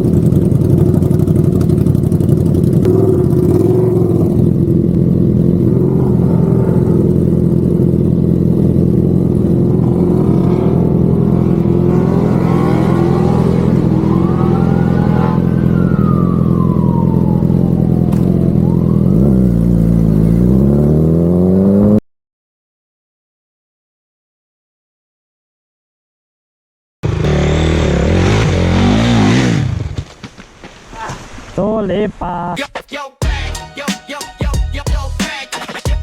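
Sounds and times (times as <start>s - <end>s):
motorcycle engine running: 0.0s - 22.0s, 27.0s - 30.2s
police siren wailing: 11.4s - 19.8s.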